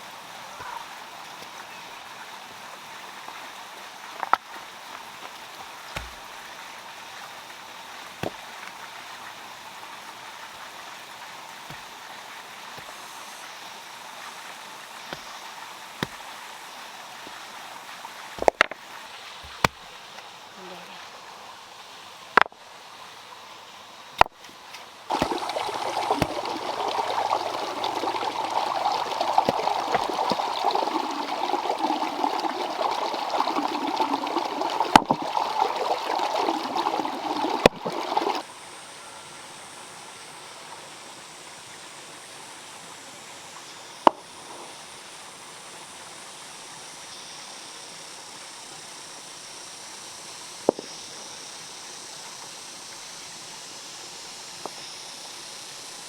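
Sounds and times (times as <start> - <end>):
water running and splashing: 0.0 - 22.2, 24.2 - 38.5.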